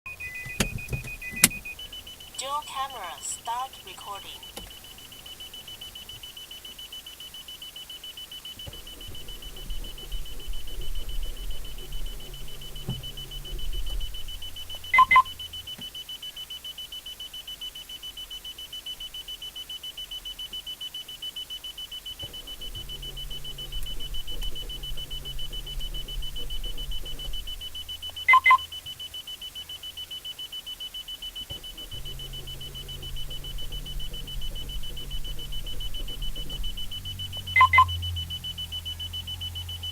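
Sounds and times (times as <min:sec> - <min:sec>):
loud double beep: 0:00.1 - 0:16.7, 0:22.1 - 0:39.9
car warning chime beeping: 0:00.1 - 0:39.9
low rumble: 0:08.8 - 0:15.7, 0:22.4 - 0:28.3, 0:31.6 - 0:39.9.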